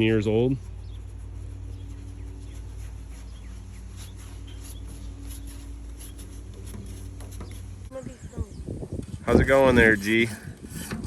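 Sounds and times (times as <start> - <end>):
steady low hum: 0.0 - 11.0
bird chirps: 0.6 - 6.3.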